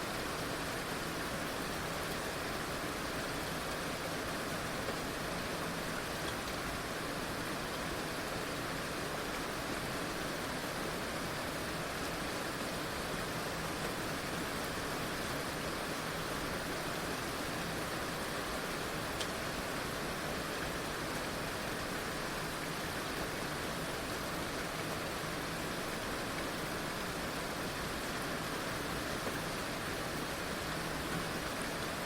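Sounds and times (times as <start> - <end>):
heavy rain falling: 0.0 - 32.0
faint tick: 19.2 - 19.4.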